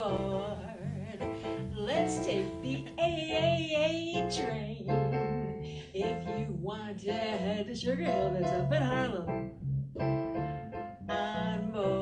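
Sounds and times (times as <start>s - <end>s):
woman singing with vibrato: 0.0s - 9.4s, 11.1s - 12.0s
bass line: 0.0s - 12.0s.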